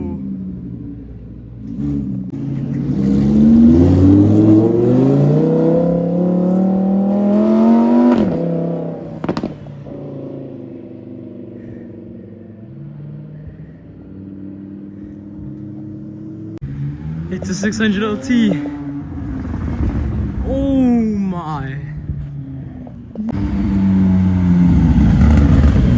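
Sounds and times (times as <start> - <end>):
car engine accelerating hard: 1.5 - 10.4, 22.6 - 25.9.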